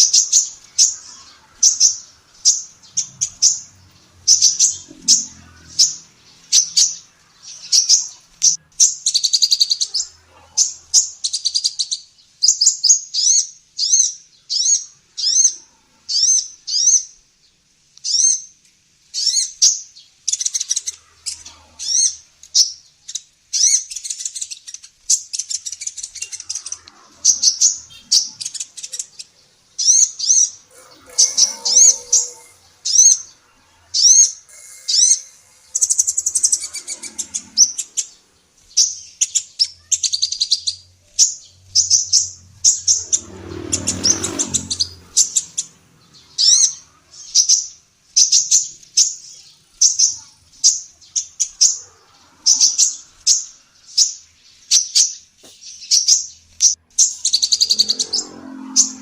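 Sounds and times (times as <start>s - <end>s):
sunbird chirping and twittering: 0.0s - 59.0s
low rough noise: 25.9s - 39.2s.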